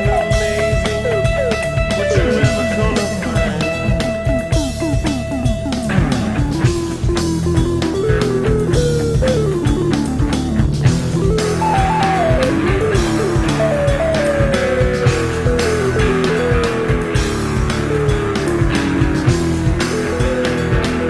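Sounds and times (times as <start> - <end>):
instrumental rock music: 0.0 - 21.0.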